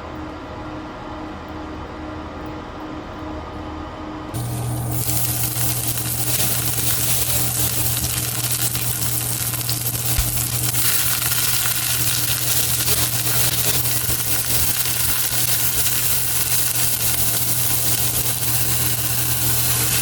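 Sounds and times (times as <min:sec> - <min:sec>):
steady low hum: 0:00.0 - 0:20.0
food sizzling in a frying pan: 0:04.4 - 0:20.0.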